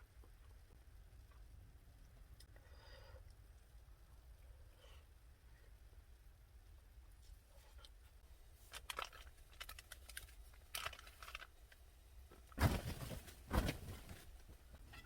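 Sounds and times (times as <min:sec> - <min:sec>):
clicks and crinkling of handling: 0:08.6 - 0:14.6.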